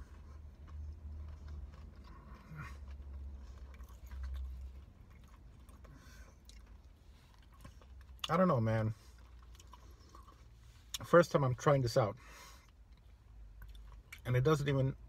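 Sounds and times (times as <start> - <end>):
person chewing: 0.0 - 8.4, 9.0 - 11.0, 12.6 - 14.2
low steady hum: 0.0 - 15.0.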